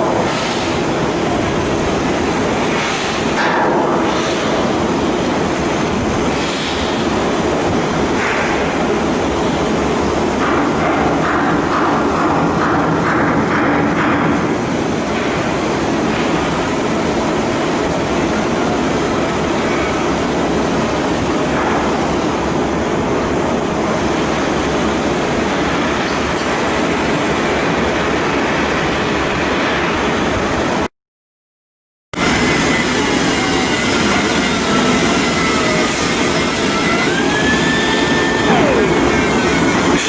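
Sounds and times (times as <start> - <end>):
machinery roar: 32.2 - 40.0.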